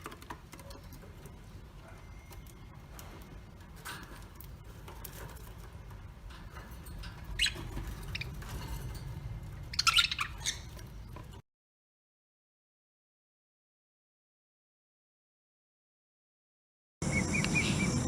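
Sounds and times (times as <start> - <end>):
small birds chirping: 7.2 - 9.0, 9.6 - 11.4, 17.0 - 18.0
loud squawky bird calls: 9.7 - 10.8, 17.0 - 18.0.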